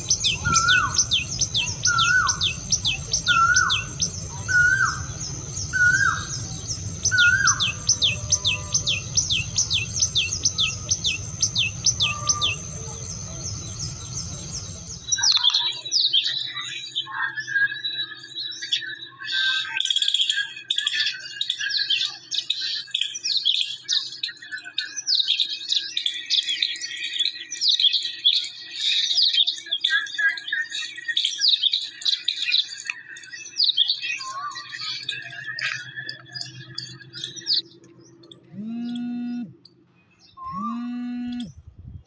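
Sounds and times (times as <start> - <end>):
faint low hum: 0.0 - 15.3, 35.2 - 42.0
birds chirping: 0.0 - 19.3, 31.8 - 42.0.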